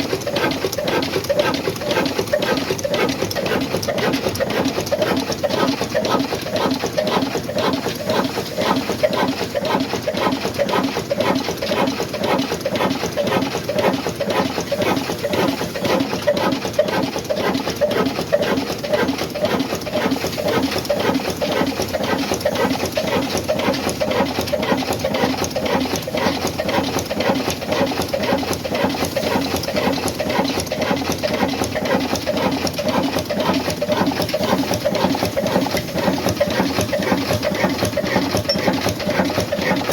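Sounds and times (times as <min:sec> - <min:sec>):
diesel engine clattering: 0:00.0 - 0:39.9.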